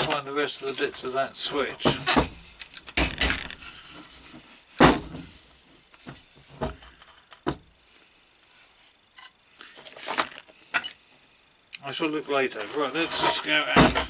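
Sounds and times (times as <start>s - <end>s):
knocks and clatters: 0.0s - 5.4s, 6.0s - 7.7s, 12.6s - 14.0s
rummaging through small parts: 0.0s - 7.6s, 12.3s - 14.0s.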